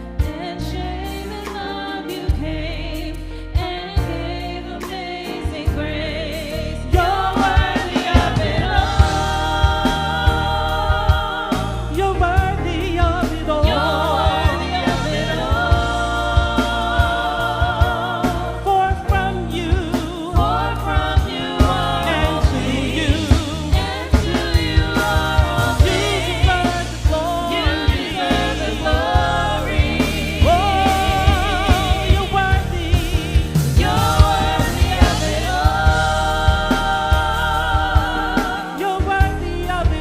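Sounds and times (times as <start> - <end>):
band with bass and drums: 0.0 - 40.0.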